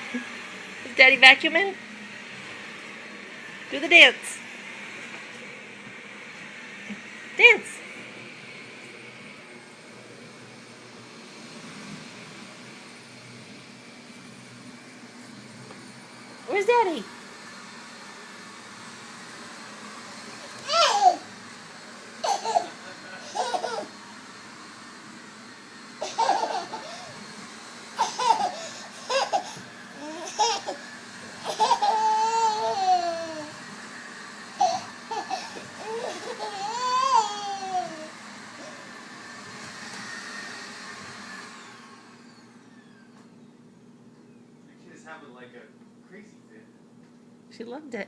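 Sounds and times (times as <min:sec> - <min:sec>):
vacuum cleaner running: 0:00.0 - 0:48.0
baby laughing: 0:20.6 - 0:21.2, 0:22.2 - 0:23.9, 0:26.0 - 0:27.2, 0:28.0 - 0:30.8, 0:31.4 - 0:33.5, 0:34.6 - 0:38.1.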